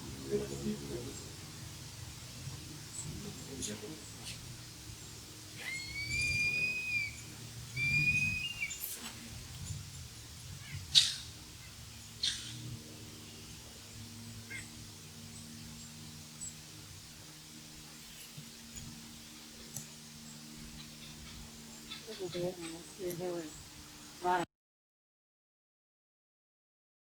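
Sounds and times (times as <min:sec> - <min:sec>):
whistled bird calls: 0:05.6 - 0:09.1, 0:10.6 - 0:11.3, 0:12.2 - 0:12.6, 0:20.7 - 0:24.3.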